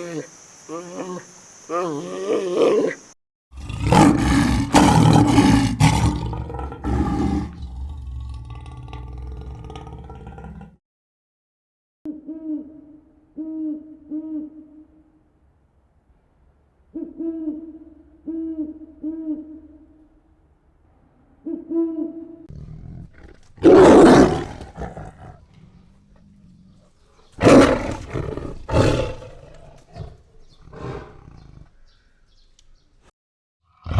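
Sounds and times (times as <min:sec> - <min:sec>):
animal roars: 0:00.0 - 0:03.0, 0:03.6 - 0:10.8, 0:22.5 - 0:31.8, 0:33.7 - 0:33.9.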